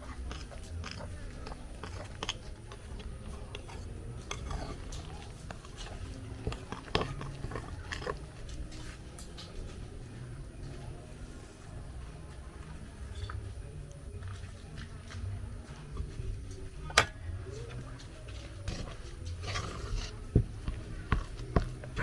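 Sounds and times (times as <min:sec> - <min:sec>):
utensil mixing food in bowl: 0:00.0 - 0:09.5.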